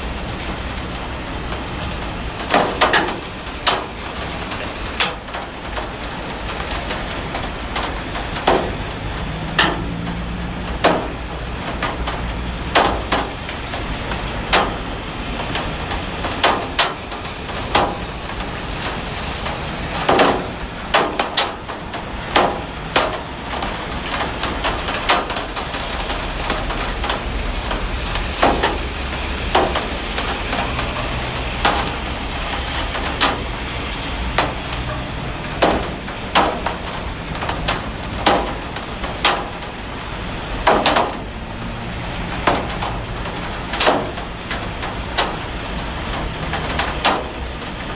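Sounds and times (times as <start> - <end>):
heavy rain hissing: 0.0 - 47.9
sharp taps and knocks: 7.3 - 13.4, 24.9 - 39.6, 40.6 - 41.4, 42.3 - 45.4.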